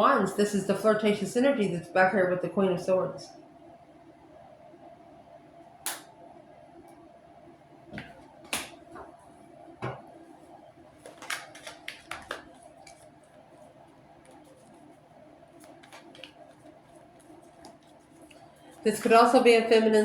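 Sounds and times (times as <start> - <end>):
cards tapping and flicking: 8.0 - 9.1, 11.0 - 13.0, 15.6 - 18.0.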